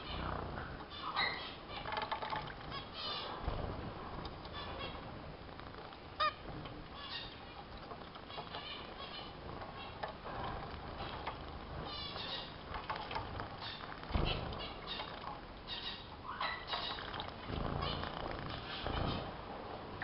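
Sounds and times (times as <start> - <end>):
finches chirping and twittering: 0.0 - 19.4
finches honking: 6.2 - 6.4.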